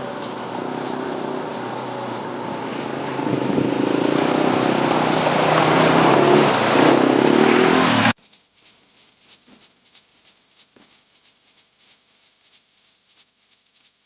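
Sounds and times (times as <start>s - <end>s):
motorcycle engine running: 0.0s - 8.2s
wind and road noise: 0.0s - 8.2s.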